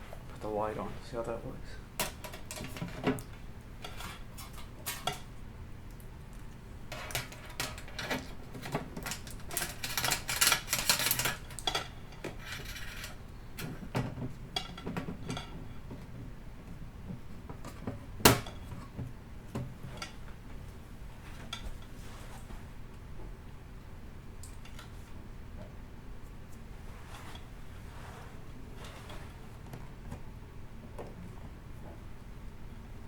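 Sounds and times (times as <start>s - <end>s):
scraping and clattering: 6.9s - 15.9s.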